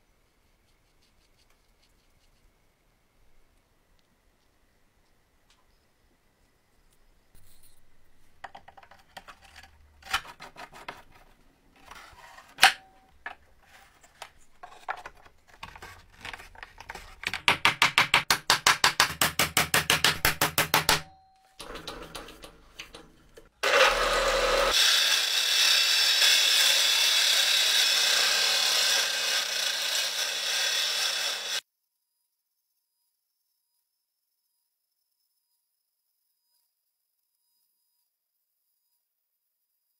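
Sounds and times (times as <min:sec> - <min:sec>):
power tool running: 0:23.6 - 0:31.6.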